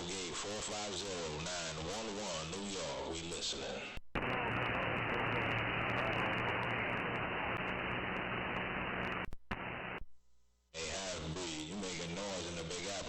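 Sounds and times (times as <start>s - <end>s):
radio static hiss: 0.0s - 10.1s, 10.8s - 13.0s
radio station signal: 4.2s - 10.0s.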